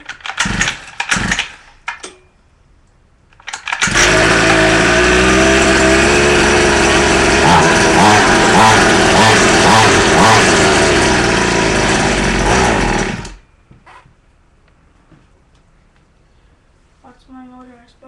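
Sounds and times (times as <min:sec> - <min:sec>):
small two-stroke engine starting: 0:00.3 - 0:01.6, 0:03.5 - 0:13.4.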